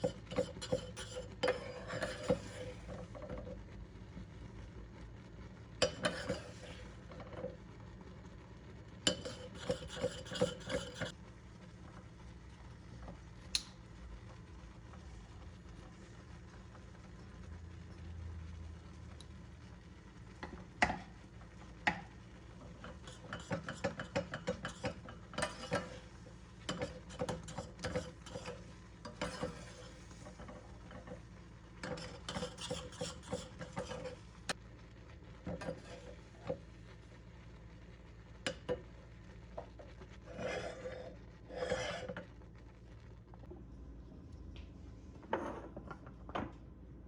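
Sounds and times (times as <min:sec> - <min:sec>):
spoon stirring and scraping in pot: 0:00.0 - 0:03.8, 0:05.5 - 0:08.0, 0:08.6 - 0:11.2, 0:20.1 - 0:34.6, 0:35.2 - 0:42.9.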